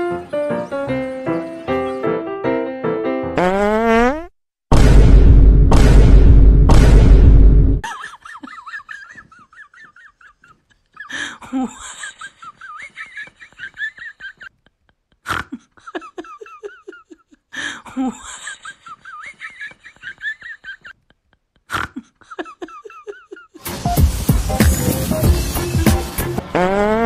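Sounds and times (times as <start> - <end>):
young women laughing: 7.8 - 14.6, 15.8 - 23.6.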